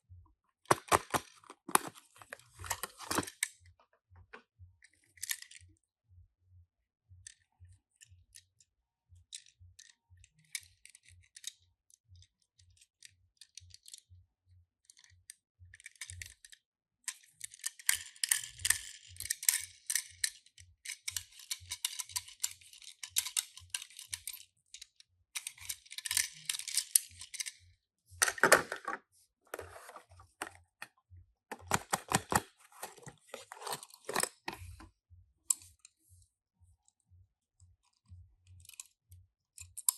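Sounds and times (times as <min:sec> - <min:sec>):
packaging rustling and crinkling: 0:00.7 - 0:03.3, 0:29.6 - 0:30.5, 0:31.5 - 0:34.8.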